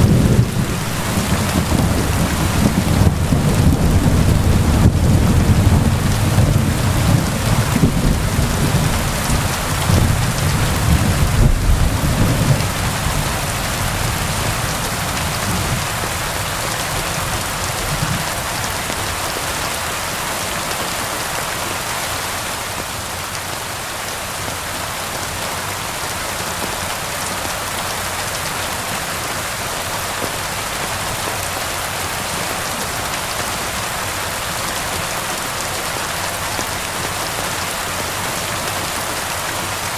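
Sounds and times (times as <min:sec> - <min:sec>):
low thunder rumble: 0:00.0 - 0:18.2
steady rain: 0:00.0 - 0:39.9.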